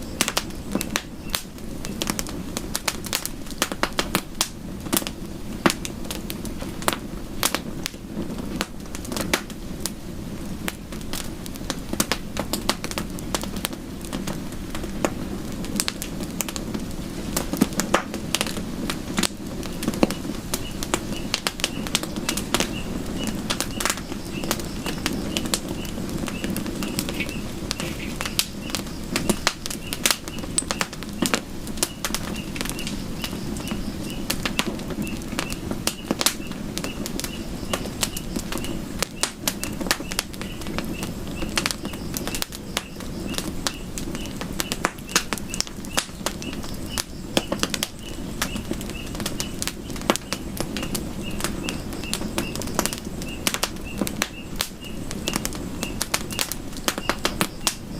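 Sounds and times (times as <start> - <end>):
low rumble of flame: 0.0 - 57.9
wood crackling and popping: 0.0 - 57.9.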